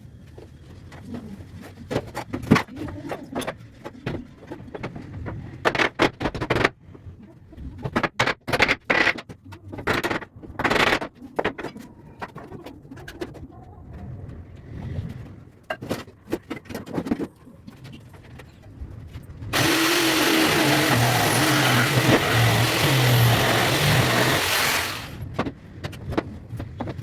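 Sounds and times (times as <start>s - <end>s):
power tool motor running: 19.5s - 25.2s
wood and tools clattering: 19.5s - 25.5s.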